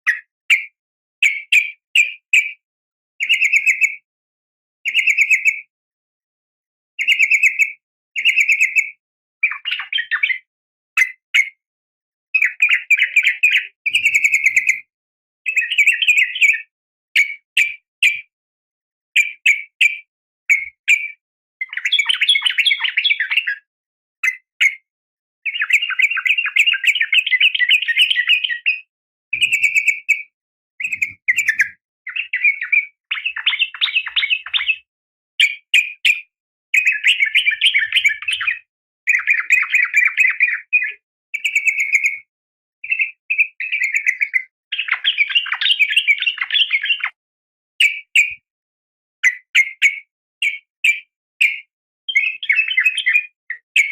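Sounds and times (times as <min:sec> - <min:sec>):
bulbul calling: 0:12.4 - 0:14.8, 0:15.5 - 0:16.6, 0:29.4 - 0:34.8, 0:36.8 - 0:38.5.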